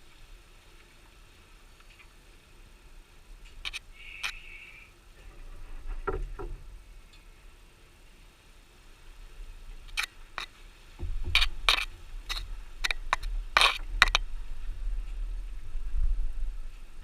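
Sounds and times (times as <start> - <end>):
sharp scrapes and clicks: 3.4 - 4.6, 9.8 - 14.3
low rumble: 11.0 - 17.0.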